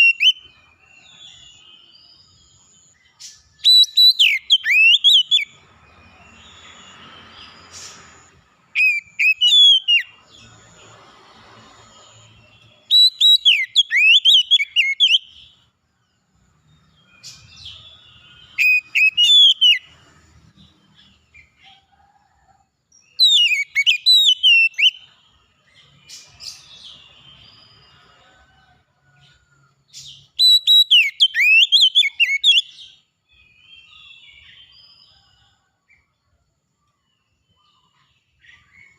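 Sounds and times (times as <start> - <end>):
songbird singing whistled phrases: 0.0 - 5.6, 8.7 - 10.2, 12.6 - 15.6, 17.0 - 20.0, 23.0 - 25.2, 30.0 - 35.0.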